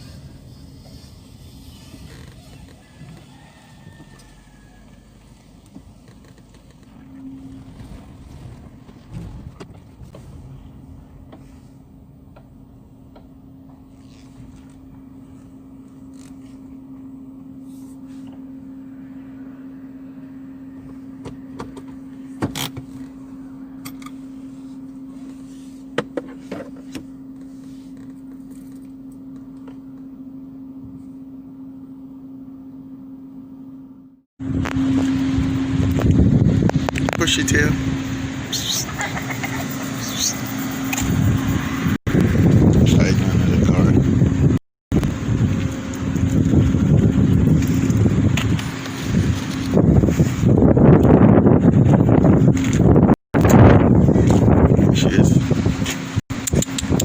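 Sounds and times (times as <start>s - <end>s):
faint hum: 0.0s - 52.8s
low steady rumble: 0.0s - 57.0s
wind on microphone: 34.4s - 38.0s, 41.0s - 57.0s
scattered clicks: 56.3s - 57.0s.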